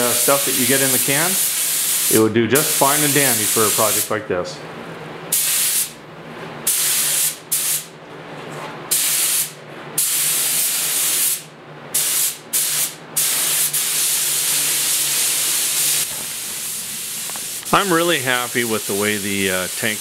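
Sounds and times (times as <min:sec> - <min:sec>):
spray gun hissing: 0:00.0 - 0:04.1, 0:05.3 - 0:05.9, 0:08.9 - 0:11.4, 0:12.0 - 0:20.0.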